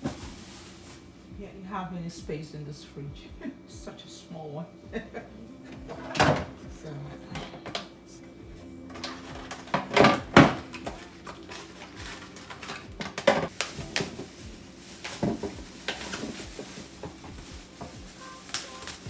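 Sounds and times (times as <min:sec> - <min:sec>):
food containers knocking and clattering: 0:05.8 - 0:06.6, 0:08.9 - 0:19.0.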